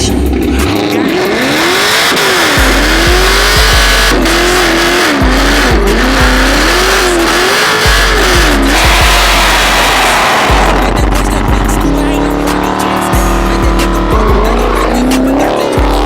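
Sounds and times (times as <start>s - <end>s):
car engine revving: 0.0s - 16.0s
music with heavy bass: 0.0s - 16.0s.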